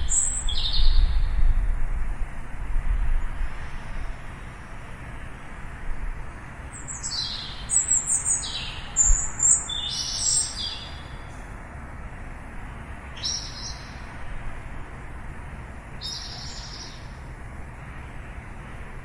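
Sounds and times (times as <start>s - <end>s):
small birds chirping: 0.0s - 1.2s, 6.7s - 11.4s, 13.2s - 14.1s, 16.0s - 17.2s
steady background hiss: 0.0s - 19.0s.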